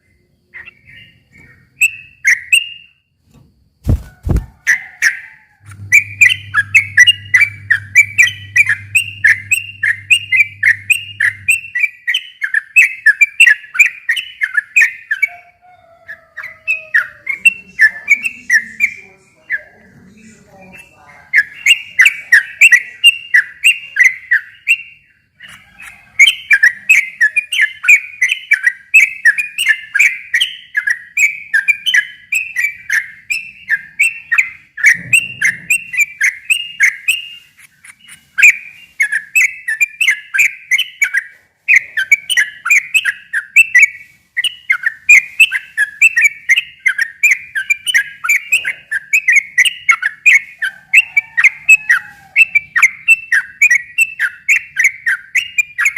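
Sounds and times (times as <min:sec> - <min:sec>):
bird singing bubbly chirps: 0:04.3 - 0:15.3, 0:21.4 - 0:37.2.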